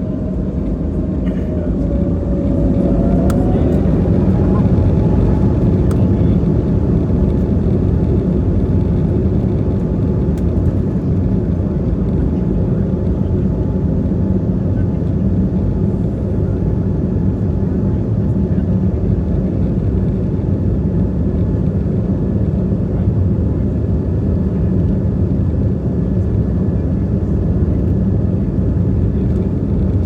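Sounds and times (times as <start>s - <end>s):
jet engines spooling up: 0.0s - 8.0s.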